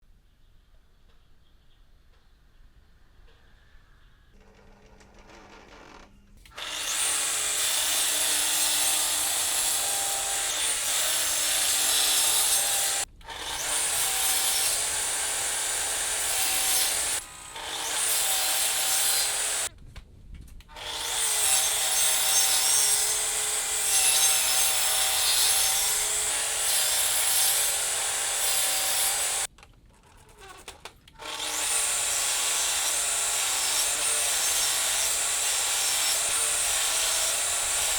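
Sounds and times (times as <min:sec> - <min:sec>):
power tool whirring on wood: 0:05.3 - 0:19.7, 0:20.7 - 0:29.5, 0:31.2 - 0:37.9.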